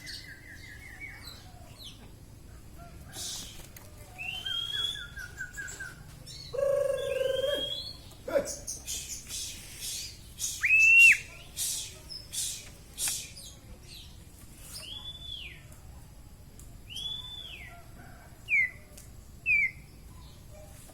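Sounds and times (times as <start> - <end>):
bird whistling: 4.2 - 8.0, 8.8 - 11.8.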